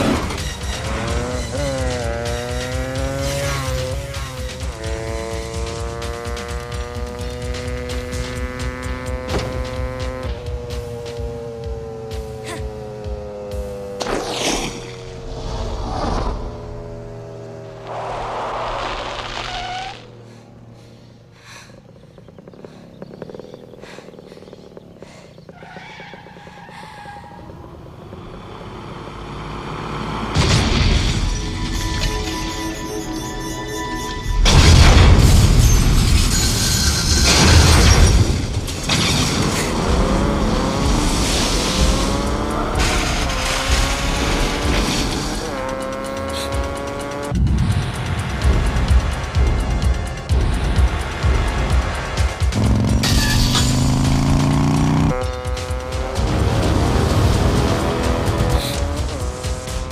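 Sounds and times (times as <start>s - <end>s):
action film music: 0.0s - 16.6s, 30.3s - 59.9s
vehicle engines droning: 0.0s - 59.9s
rough running noise: 17.8s - 25.6s.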